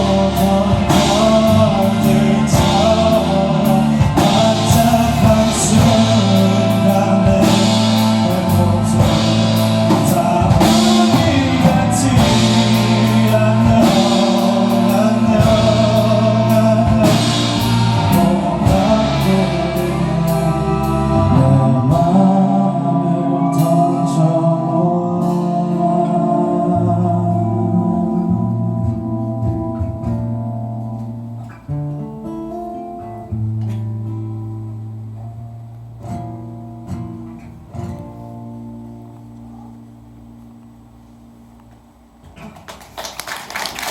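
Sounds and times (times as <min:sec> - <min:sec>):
rock band playing: 0:00.0 - 0:34.0.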